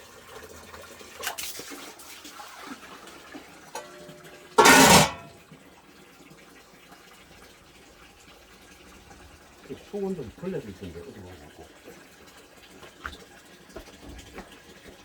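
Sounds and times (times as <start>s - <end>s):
water trickling: 5.2s - 15.0s.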